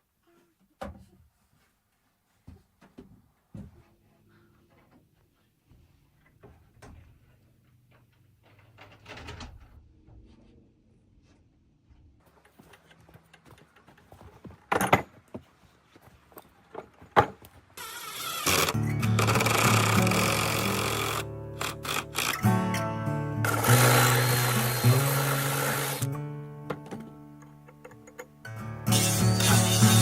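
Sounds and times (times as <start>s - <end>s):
music: 18.7s - 30.0s.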